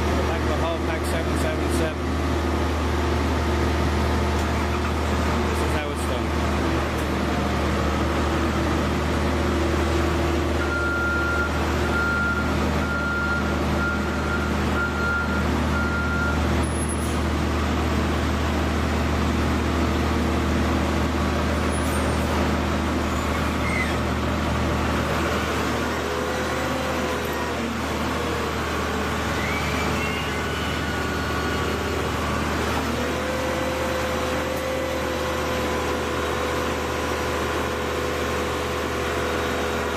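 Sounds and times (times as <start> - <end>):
diesel machinery droning: 0.0 - 39.9
reversing alarm beeping: 10.6 - 17.1, 29.3 - 32.4.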